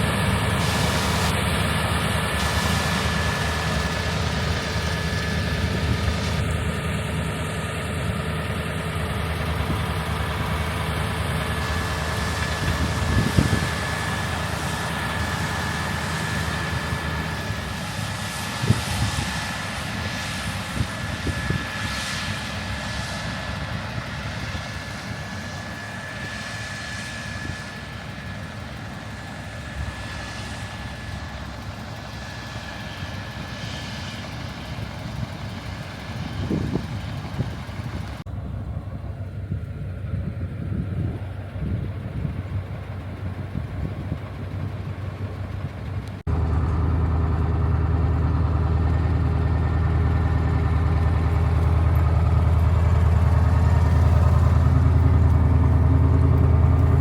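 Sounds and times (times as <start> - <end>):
constant high whine: 0.0 - 57.0
diesel engine rumble: 0.0 - 57.0.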